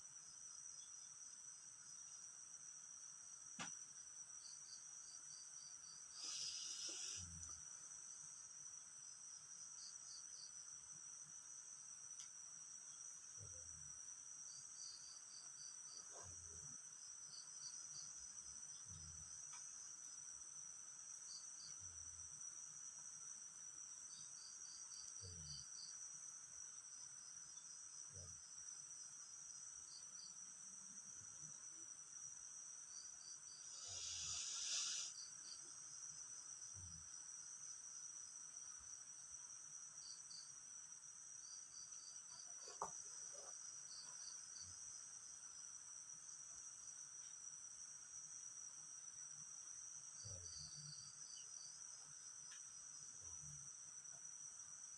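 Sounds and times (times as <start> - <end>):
crickets chirping: 0.0 - 54.9
high insect drone: 0.0 - 54.9
brief rushing hiss: 33.8 - 35.1.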